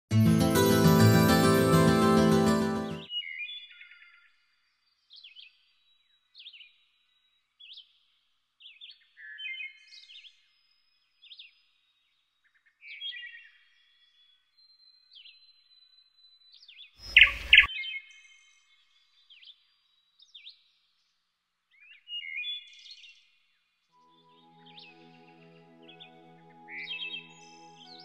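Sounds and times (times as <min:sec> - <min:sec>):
birds chirping: 0:17.0 - 0:17.7.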